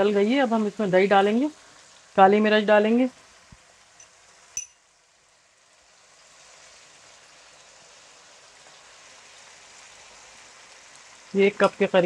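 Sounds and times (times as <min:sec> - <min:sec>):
chicken sizzling in oil: 0:00.0 - 0:12.0
short metallic clink: 0:04.0 - 0:04.8.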